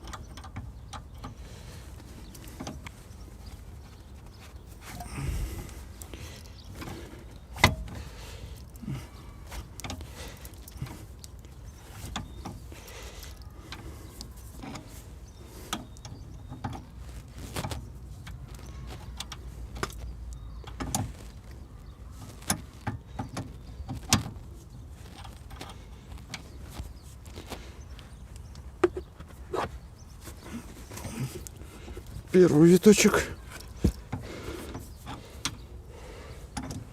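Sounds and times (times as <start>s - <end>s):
metallic clicks and knocks of tools: 0.0s - 1.4s.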